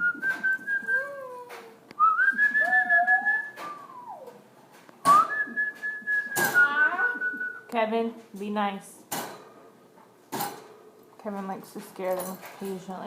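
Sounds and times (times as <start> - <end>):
person whistling long notes: 0.0 - 1.4, 2.0 - 4.4, 5.1 - 7.6.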